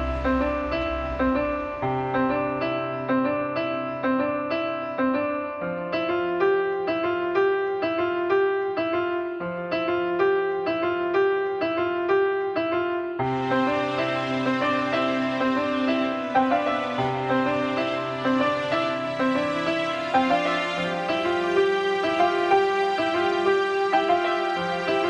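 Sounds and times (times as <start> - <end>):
held bass notes: 0.0 - 2.7
keyboard melody: 13.2 - 25.0.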